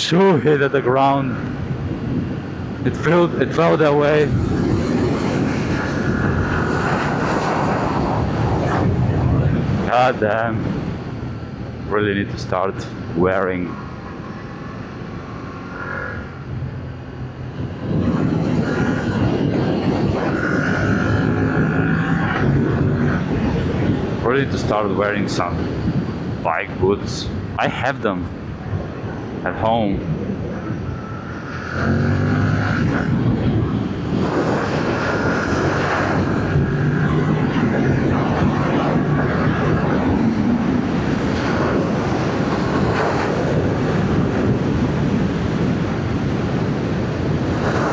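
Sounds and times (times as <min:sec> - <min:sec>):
road noise: 0:00.0 - 0:47.9
wind noise: 0:00.0 - 0:47.9
motorcycle engine while riding: 0:13.8 - 0:23.5, 0:30.9 - 0:38.2
motorcycle engine accelerating: 0:31.0 - 0:33.2.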